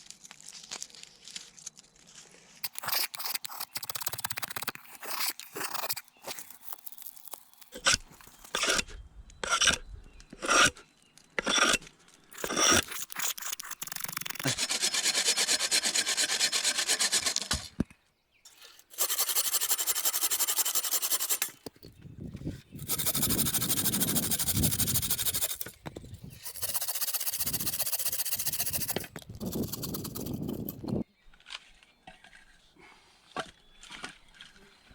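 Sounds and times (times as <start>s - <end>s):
saw rasping through wood: 9.4s - 10.8s, 11.4s - 11.8s, 12.4s - 17.6s, 18.9s - 21.7s, 22.8s - 25.7s, 26.3s - 31.0s.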